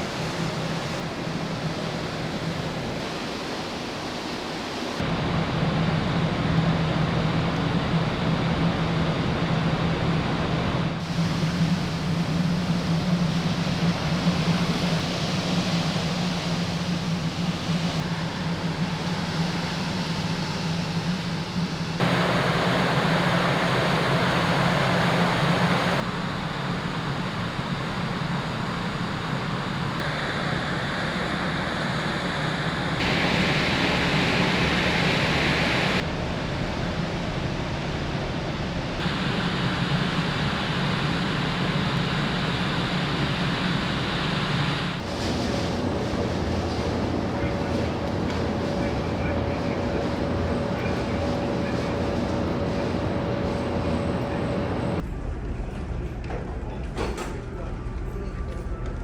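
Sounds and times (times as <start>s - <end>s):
wind and sea rushing: 0.0s - 6.2s, 10.6s - 55.0s
ship engines humming: 11.0s - 36.0s, 39.0s - 55.0s.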